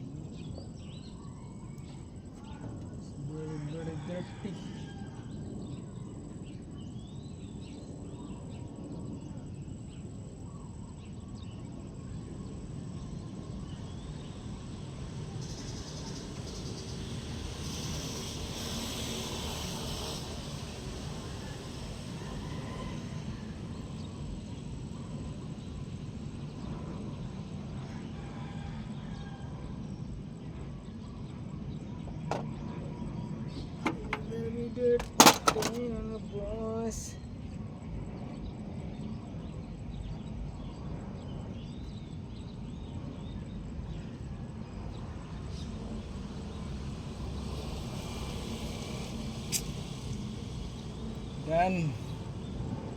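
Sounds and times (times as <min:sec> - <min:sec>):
steady low rumble: 0:00.0 - 0:19.0
birds chirping: 0:00.0 - 0:19.1, 0:29.8 - 0:46.7, 0:49.2 - 0:52.9
high pulsing insect buzz: 0:03.2 - 0:22.2, 0:42.2 - 0:52.9.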